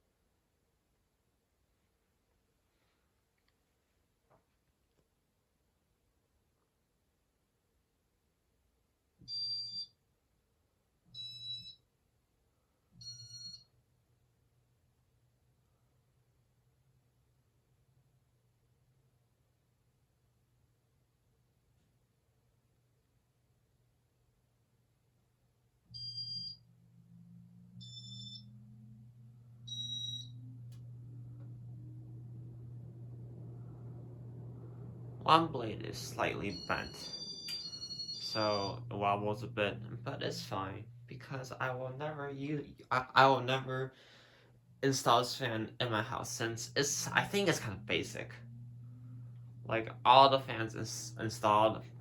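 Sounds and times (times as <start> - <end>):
ceiling fan beeping: 9.3 - 9.9, 11.2 - 11.8, 13.0 - 13.7, 26.0 - 41.7, 46.8 - 52.0
faint low hum: 25.4 - 52.0.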